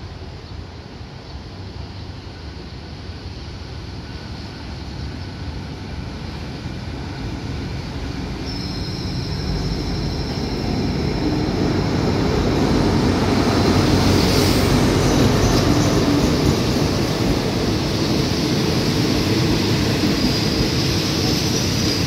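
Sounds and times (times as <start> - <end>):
train engine and wheel rumble: 0.0 - 22.0
high-pitched brake squeal: 8.4 - 11.6.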